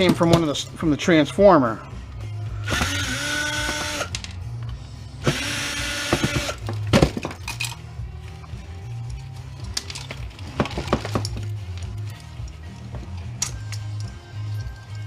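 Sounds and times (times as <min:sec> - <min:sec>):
background music: 0:00.0 - 0:15.0
power drill whining: 0:02.6 - 0:04.1, 0:05.2 - 0:06.6.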